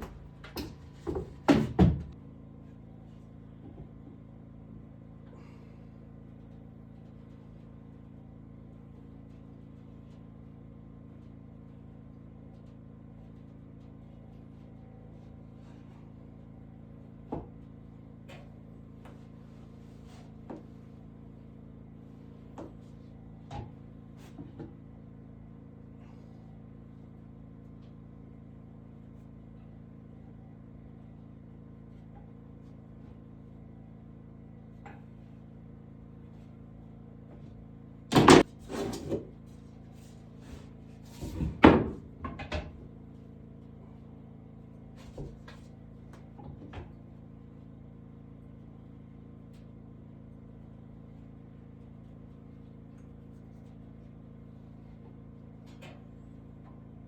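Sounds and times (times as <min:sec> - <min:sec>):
steady low hum: 0:00.0 - 0:57.0
sharp knocks and clatter: 0:38.1 - 0:39.2.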